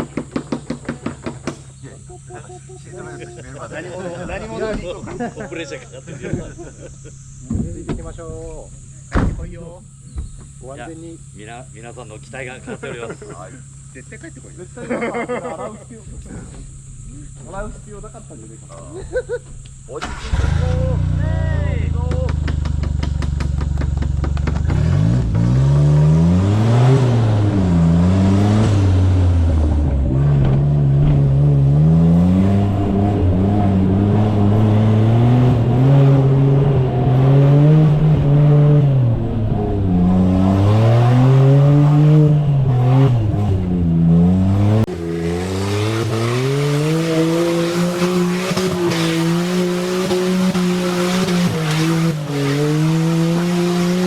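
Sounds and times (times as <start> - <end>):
small engine revving: 16.2 - 54.0.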